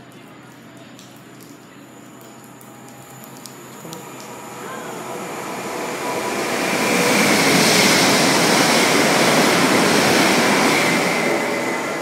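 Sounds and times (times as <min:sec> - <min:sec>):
train rushing past: 0:04.1 - 0:12.0.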